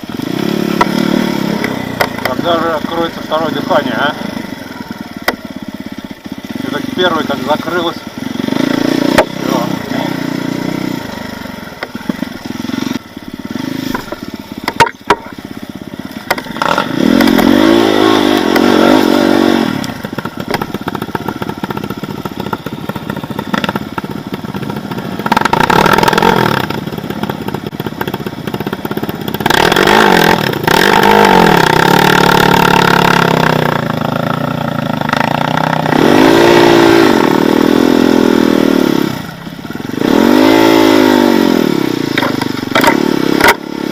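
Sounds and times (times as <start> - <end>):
motorcycle engine revving: 0.0 - 43.9
sharp knocks and clatter: 1.6 - 2.4, 5.2 - 5.4, 9.1 - 9.4, 11.8 - 12.4, 13.8 - 15.4, 16.2 - 17.6, 20.0 - 24.1, 42.1 - 43.6.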